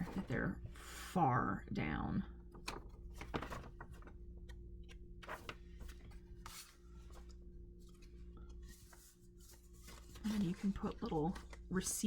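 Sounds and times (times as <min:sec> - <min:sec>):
low electrical hum: 0:00.0 - 0:12.0
paper pages rustling: 0:02.5 - 0:12.0.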